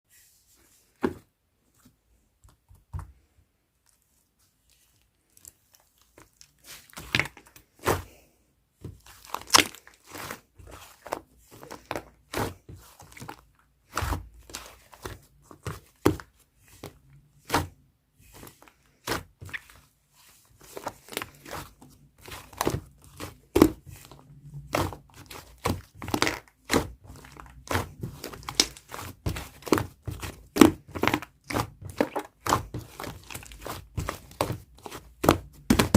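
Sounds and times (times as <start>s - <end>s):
slime kneaded with sticky pops: 3.8s - 19.9s, 20.6s - 35.9s.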